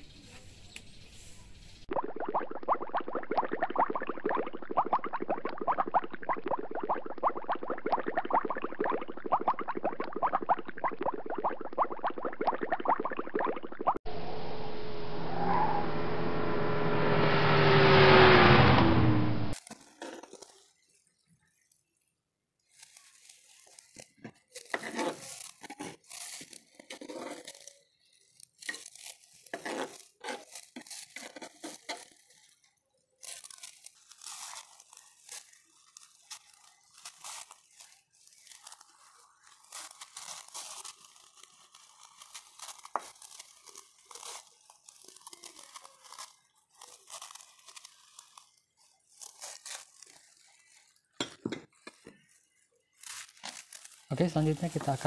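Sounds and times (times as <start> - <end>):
plastic gloves crinkling: 2.0 - 14.0, 22.6 - 51.2, 52.0 - 55.0.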